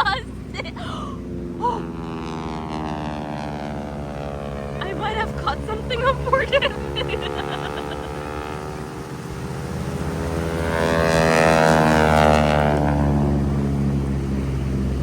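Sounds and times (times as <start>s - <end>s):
propeller airplane engine drone: 0.0s - 15.0s.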